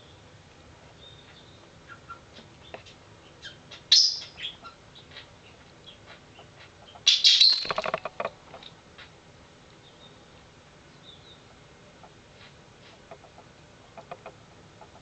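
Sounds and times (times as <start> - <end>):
bird chirping: 1.0 - 8.0, 9.8 - 10.3, 10.9 - 11.5.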